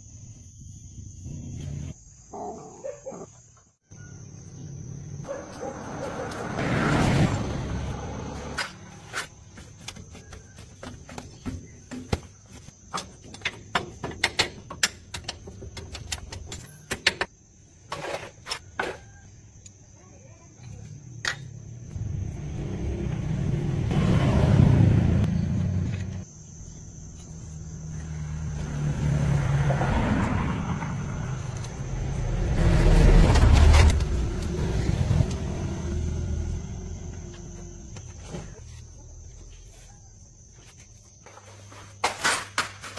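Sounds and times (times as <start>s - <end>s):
sharp metallic clicks and knocks: 12.9s - 17.3s
car engine revving: 21.9s - 26.2s, 27.6s - 38.3s.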